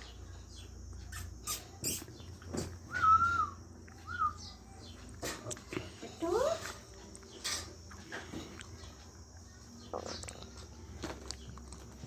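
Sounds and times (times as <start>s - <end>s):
parrot whistling: 2.9s - 4.5s.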